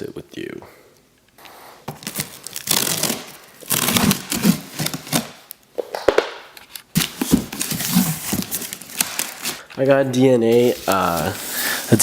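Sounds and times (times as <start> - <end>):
cardboard scraping and rustling: 7.0 - 9.6, 10.5 - 12.0.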